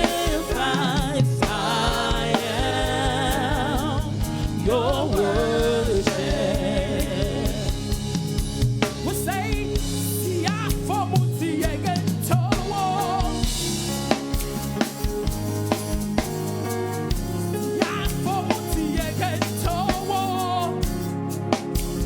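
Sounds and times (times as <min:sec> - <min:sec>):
person singing with vibrato: 0:00.0 - 0:08.3, 0:09.2 - 0:13.8
drum kit steady beat: 0:00.0 - 0:22.0
sustained low accompaniment: 0:01.4 - 0:10.3.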